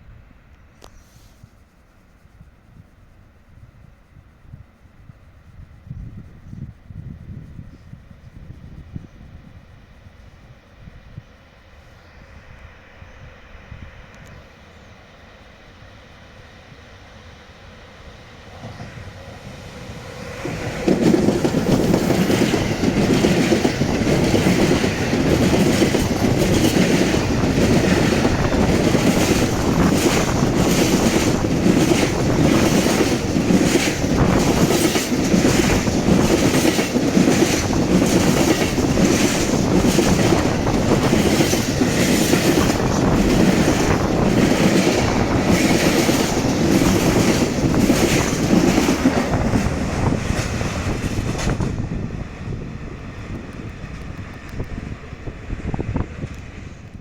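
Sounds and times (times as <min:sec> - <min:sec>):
freight train rumbling past: 0:05.6 - 0:57.0
wheels clacking over rail joints: 0:20.0 - 0:51.9.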